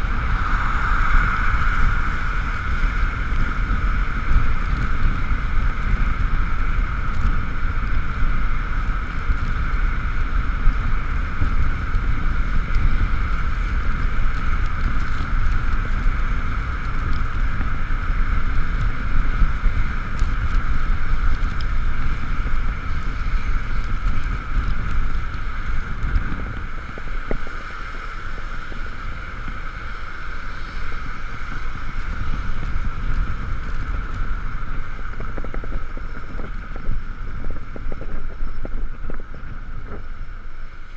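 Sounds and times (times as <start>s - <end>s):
high-pitched whine: 0.0s - 9.3s
wind rumble on microphone: 0.0s - 40.9s.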